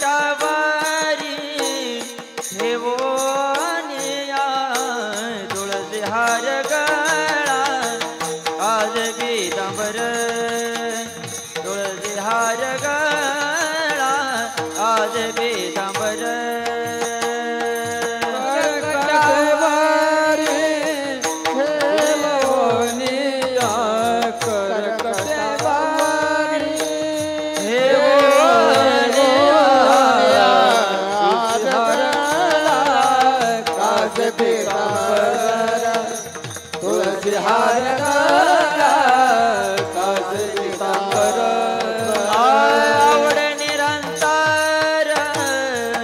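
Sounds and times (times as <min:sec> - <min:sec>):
man singing devotional song: 0:00.0 - 0:46.0
hand drum beat: 0:14.6 - 0:46.0.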